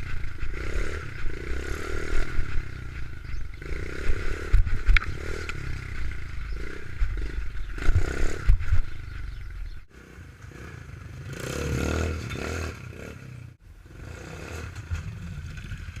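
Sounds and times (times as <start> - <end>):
pit bike engine running: 0.0 - 9.9.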